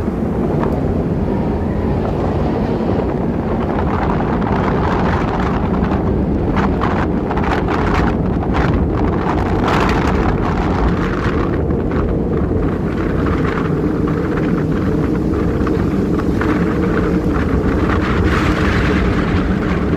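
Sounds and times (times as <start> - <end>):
wind on microphone: 0.0 - 19.9.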